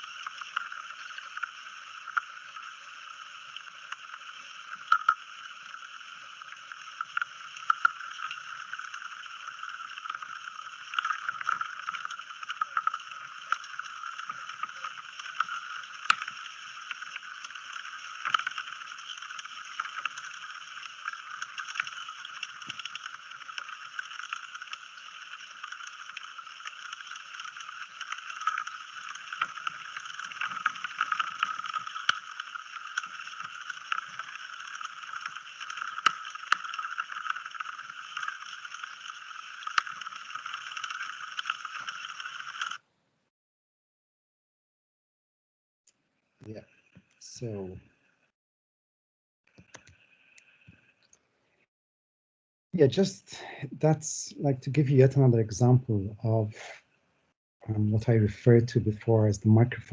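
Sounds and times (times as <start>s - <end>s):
breeze hissing: 52.8s - 56.8s.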